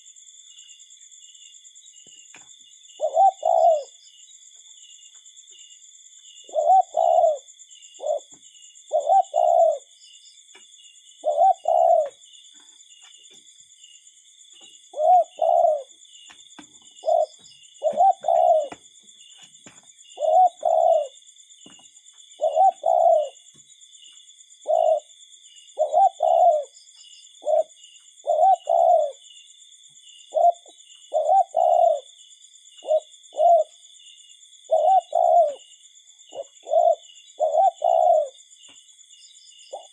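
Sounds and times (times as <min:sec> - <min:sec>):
cuckoo calling: 0:03.0 - 0:04.0, 0:06.4 - 0:09.9, 0:11.2 - 0:12.2, 0:14.6 - 0:18.9, 0:19.6 - 0:23.6, 0:24.6 - 0:25.1, 0:25.8 - 0:26.8, 0:27.4 - 0:29.2, 0:30.3 - 0:32.1, 0:32.8 - 0:33.8, 0:34.7 - 0:35.7, 0:36.3 - 0:38.4.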